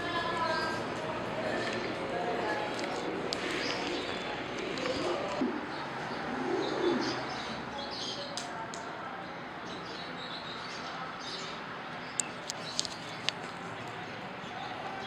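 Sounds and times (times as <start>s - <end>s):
small birds chirping: 0.0s - 9.0s, 9.7s - 15.0s
pigeon cooing: 1.4s - 7.6s.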